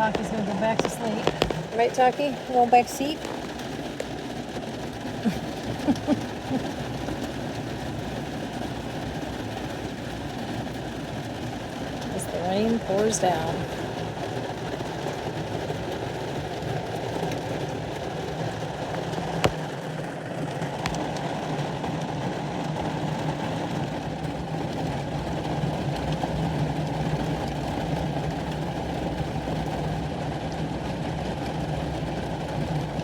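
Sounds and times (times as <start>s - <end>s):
torrential rain pouring: 0.0s - 33.0s.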